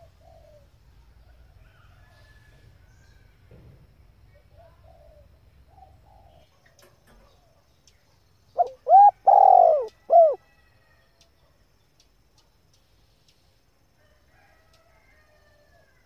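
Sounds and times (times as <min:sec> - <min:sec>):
dove cooing: 0:00.0 - 0:00.7, 0:04.6 - 0:06.4, 0:08.6 - 0:10.4.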